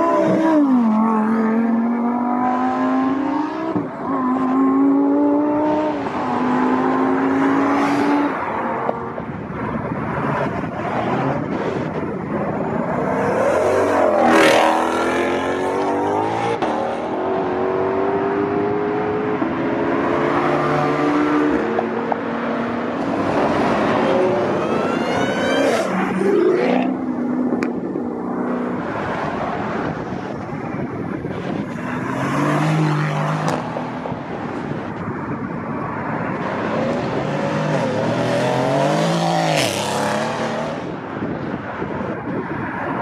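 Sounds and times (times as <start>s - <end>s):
car engines revving hard: 0.0s - 42.3s.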